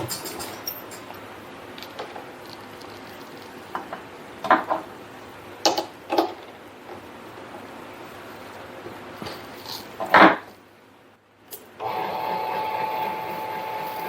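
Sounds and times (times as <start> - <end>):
metal clinks and knocks: 0.0 - 1.2.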